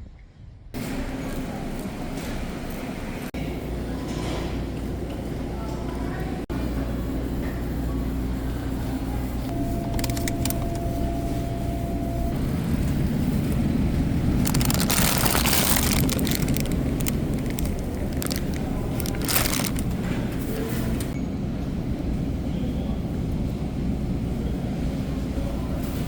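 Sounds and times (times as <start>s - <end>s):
scattered clicks: 9.8s - 10.9s
car interior driving rumble: 14.3s - 20.0s.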